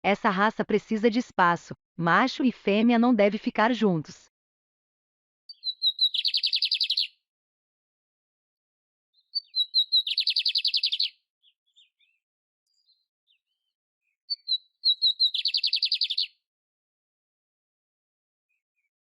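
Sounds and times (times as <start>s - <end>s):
canary singing with trills: 5.5s - 7.2s, 9.2s - 12.2s, 14.3s - 16.4s.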